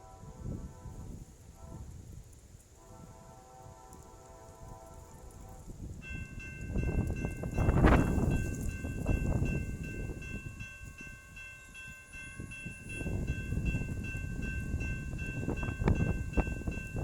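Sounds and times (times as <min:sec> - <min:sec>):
wind buffeting microphone: 0:00.0 - 0:17.0
train rumbling past: 0:02.7 - 0:17.0
crossing bell ringing: 0:06.0 - 0:17.0.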